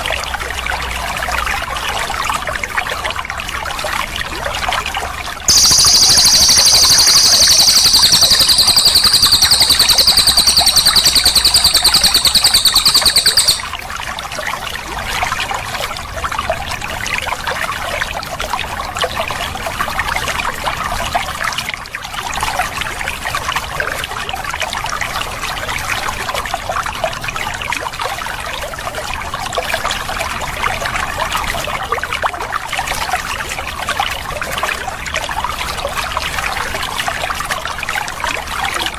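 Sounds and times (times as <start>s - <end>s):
songbird high rapid trill: 5.5s - 13.8s
trickling water: 5.5s - 13.8s.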